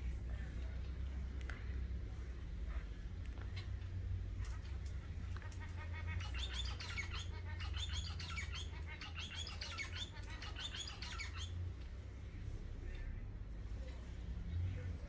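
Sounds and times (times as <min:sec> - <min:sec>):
low steady hum: 0:00.0 - 0:15.0
small birds twittering: 0:02.5 - 0:13.0.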